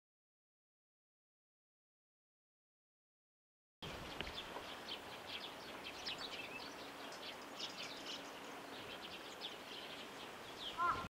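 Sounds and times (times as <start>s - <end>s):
birds chirping: 3.8s - 11.0s
faint steady hiss: 3.8s - 11.0s.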